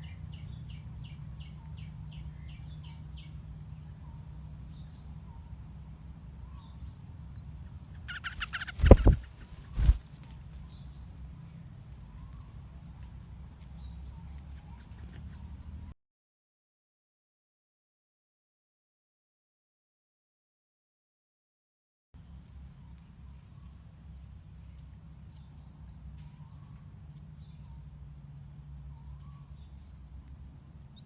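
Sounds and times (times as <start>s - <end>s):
steady low hum: 0.0s - 15.9s, 22.2s - 31.0s
small birds chirping: 0.0s - 16.0s, 22.2s - 31.0s.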